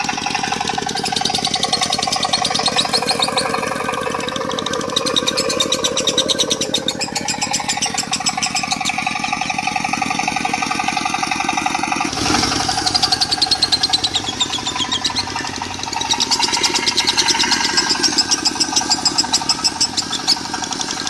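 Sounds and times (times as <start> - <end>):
diesel engine running: 0.0 - 21.0
lovebird chattering trills: 0.9 - 10.4, 12.8 - 20.8.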